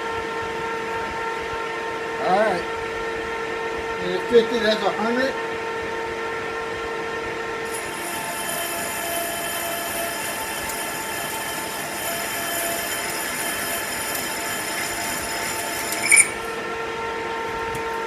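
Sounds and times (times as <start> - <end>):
metal lathe whine: 7.6 - 17.5
high metallic ringing from cutting: 7.7 - 16.6
lathe squeal: 7.7 - 16.6.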